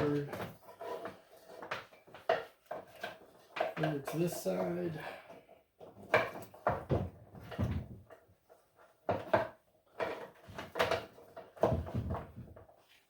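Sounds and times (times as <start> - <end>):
knocks inside wooden tool cart: 11.6 - 12.6.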